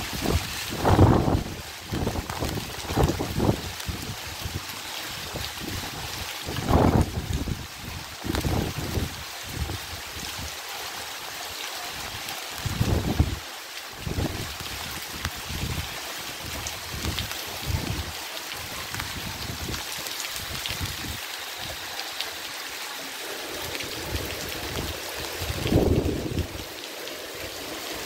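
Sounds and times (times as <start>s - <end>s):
wind buffeting the microphone: 0.0s - 10.5s, 12.6s - 13.4s, 14.0s - 21.8s, 23.6s - 26.8s
heavy rain falling: 0.0s - 28.0s.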